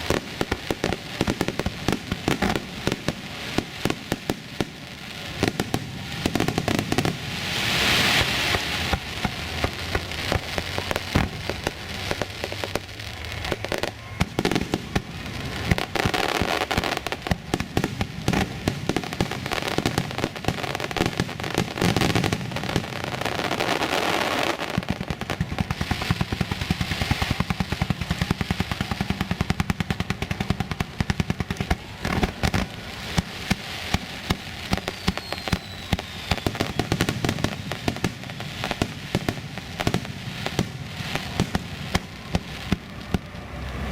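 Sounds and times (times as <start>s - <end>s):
fireworks bangs: 0.0s - 43.9s
fireworks crackling and popping: 0.0s - 43.9s.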